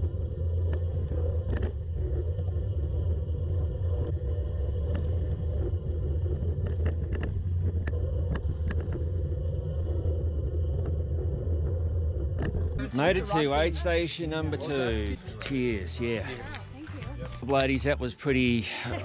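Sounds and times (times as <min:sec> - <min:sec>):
sharp clicks and ticks: 0:00.0 - 0:03.3, 0:03.9 - 0:09.4
wind noise: 0:00.0 - 0:13.2
bike rumble: 0:00.0 - 0:17.5.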